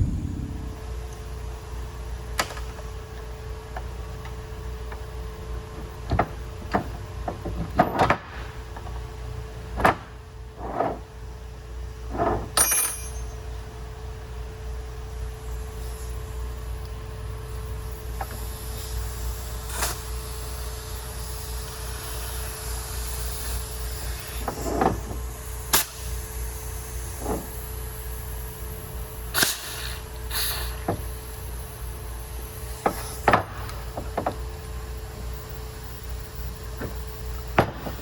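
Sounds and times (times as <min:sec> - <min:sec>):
car engine idling: 0:00.0 - 0:01.0.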